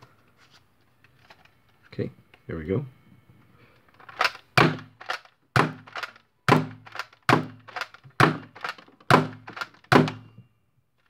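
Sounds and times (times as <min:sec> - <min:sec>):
toy blaster firing thunks: 0:04.0 - 0:10.2.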